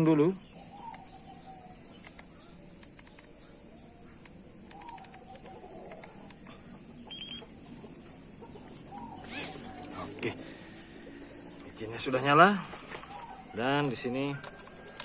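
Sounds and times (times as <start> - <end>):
insects buzzing: 0.0 - 15.0
chickens clucking: 4.6 - 11.7
short beeps: 7.1 - 7.5.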